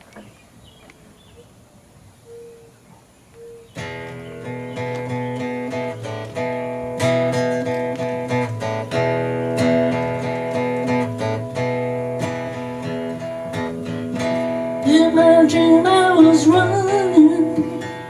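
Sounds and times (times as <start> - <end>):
acoustic guitar strumming: 3.8 - 18.0.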